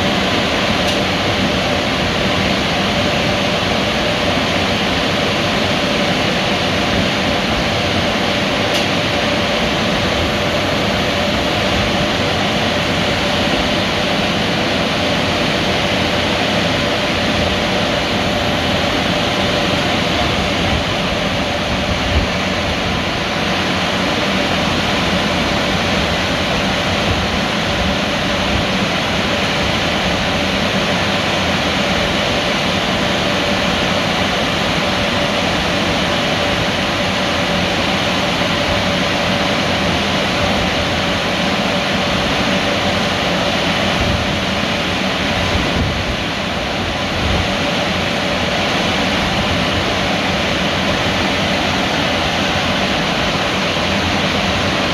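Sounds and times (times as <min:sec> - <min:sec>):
mid-pitched hum: 0:00.0 - 0:23.4
machinery noise: 0:08.6 - 0:21.9.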